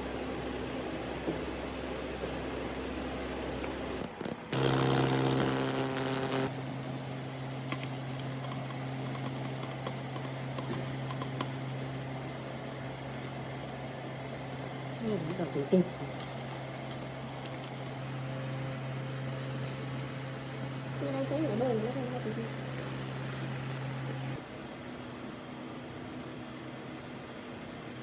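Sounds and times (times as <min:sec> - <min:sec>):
power tool grinding: 0:04.0 - 0:11.8
power tool motor humming: 0:04.0 - 0:13.4, 0:14.8 - 0:24.4.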